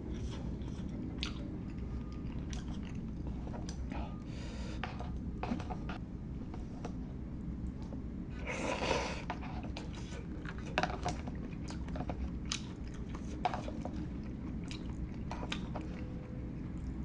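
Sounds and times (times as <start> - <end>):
steady low hum: 0.0 - 17.0
wet chewing: 0.1 - 4.2, 9.2 - 17.0.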